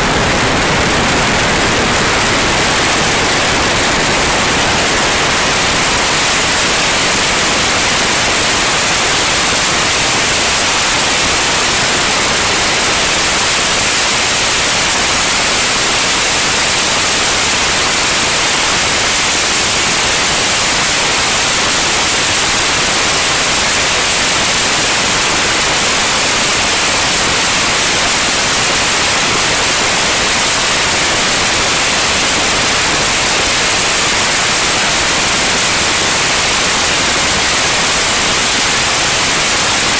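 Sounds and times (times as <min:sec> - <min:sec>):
static-like hiss: 0:00.0 - 0:39.9.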